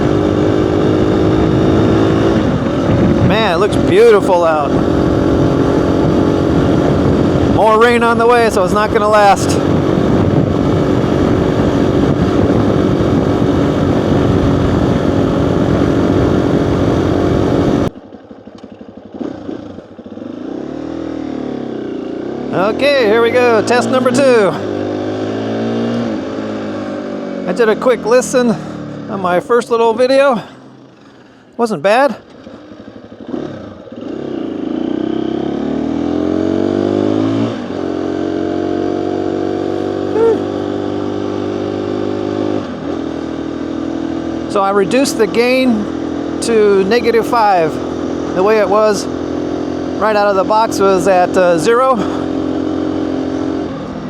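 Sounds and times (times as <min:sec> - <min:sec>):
wind rushing over microphone: 0:00.0 - 0:18.0
motorcycle engine running: 0:00.0 - 0:54.0.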